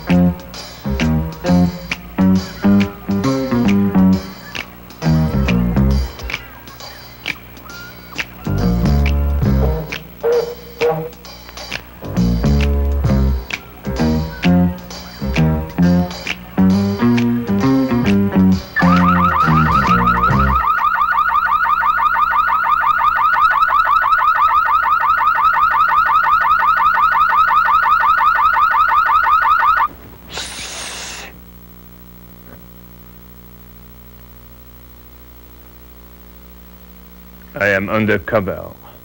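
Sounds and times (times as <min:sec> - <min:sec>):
guitar music: 0:00.0 - 0:20.6
car alarm siren warbling: 0:08.4 - 0:11.2, 0:18.7 - 0:29.9
short hiss: 0:30.2 - 0:31.4.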